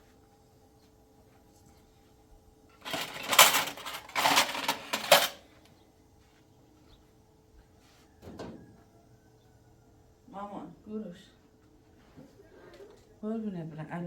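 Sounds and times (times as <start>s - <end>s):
metal dishes clattering: 2.8s - 5.4s.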